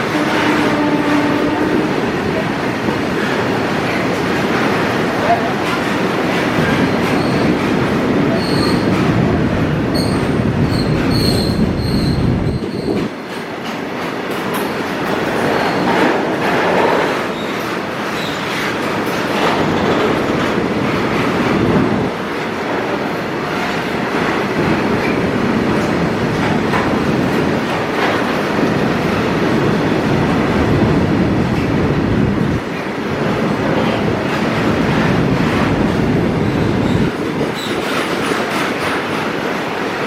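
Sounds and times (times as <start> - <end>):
train wheels rumbling on rails: 0.0 - 40.0
high wheel squeals: 10.0 - 13.0.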